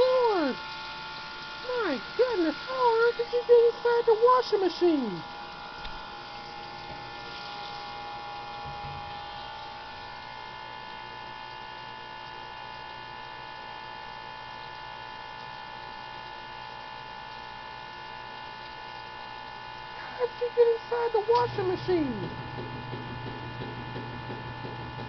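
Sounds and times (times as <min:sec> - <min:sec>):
electrical hum and whine: 0:00.0 - 0:25.0.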